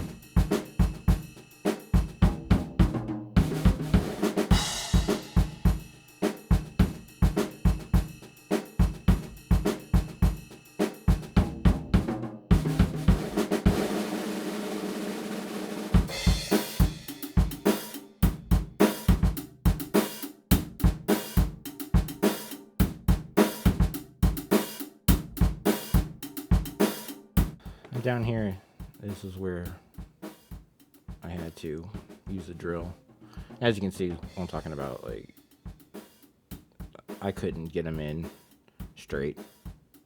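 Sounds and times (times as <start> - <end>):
drum kit playing a beat: 0.0 - 40.0.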